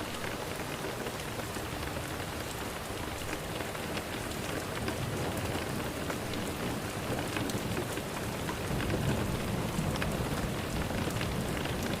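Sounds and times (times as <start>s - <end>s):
steady rain falling: 0.0s - 12.0s
low rumble of thunder: 8.7s - 12.0s.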